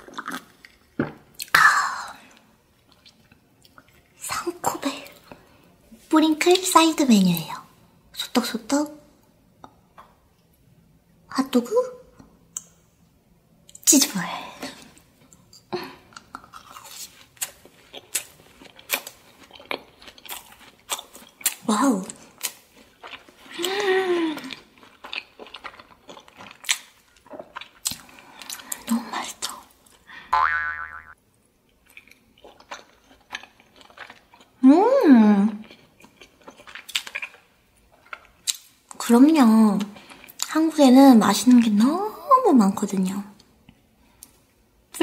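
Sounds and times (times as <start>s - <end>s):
biting and chewing crunchy food: 0.0s - 1.5s, 16.2s - 28.9s, 31.7s - 34.6s, 35.5s - 39.0s.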